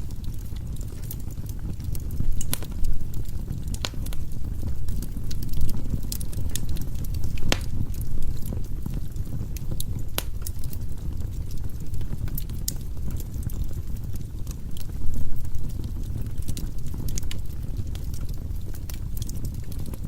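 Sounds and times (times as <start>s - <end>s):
burning logs crackling: 0.0s - 20.0s
fire flames rumbling: 0.0s - 20.0s.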